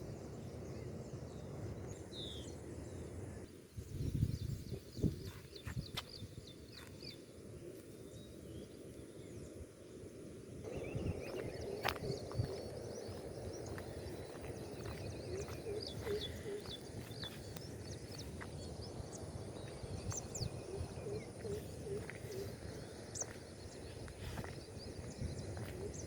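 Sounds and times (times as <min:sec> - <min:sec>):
birds chirping: 0:00.0 - 0:26.0
short repeated lower bird calls: 0:10.6 - 0:18.8, 0:19.6 - 0:26.0.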